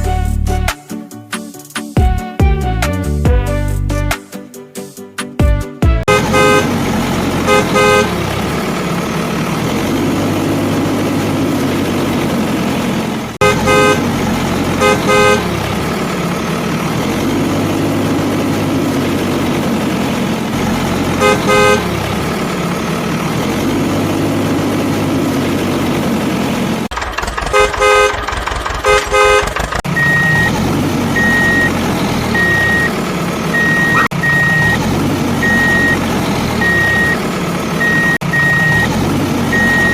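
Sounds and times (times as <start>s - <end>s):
truck engine running: 5.8s - 39.9s
short horn toots: 6.1s - 6.7s
reversing beeper: 29.9s - 37.2s, 37.8s - 39.9s.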